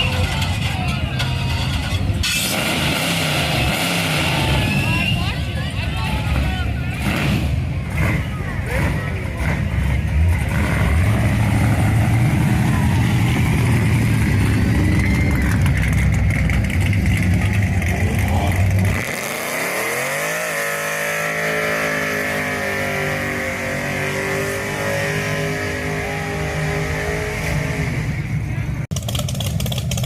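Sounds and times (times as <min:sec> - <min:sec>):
car engine and exhaust rumble: 0:00.0 - 0:30.0.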